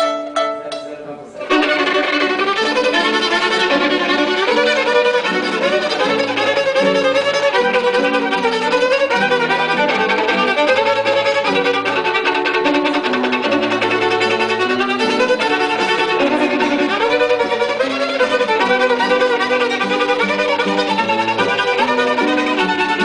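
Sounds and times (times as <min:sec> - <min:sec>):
violin playing hymn melody: 0:00.0 - 0:23.0.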